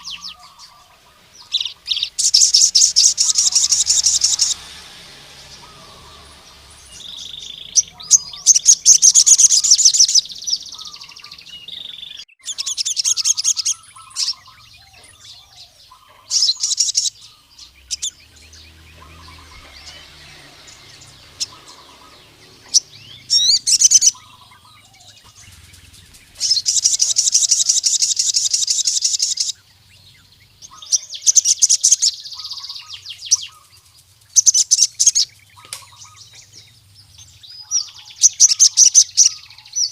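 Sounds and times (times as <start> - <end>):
bird singing high trills: 0.0 - 39.9.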